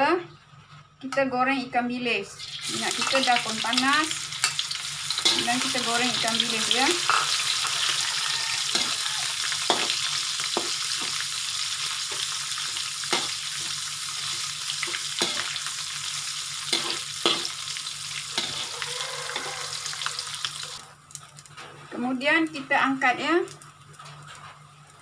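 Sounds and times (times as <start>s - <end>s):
fish sizzling in oil: 2.4s - 21.6s
metal spatula scraping wok: 2.6s - 20.8s.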